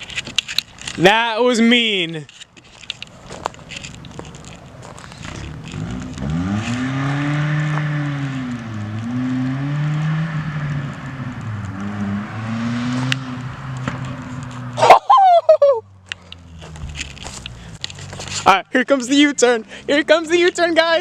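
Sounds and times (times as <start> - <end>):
car exhaust revving: 4.4 - 14.9.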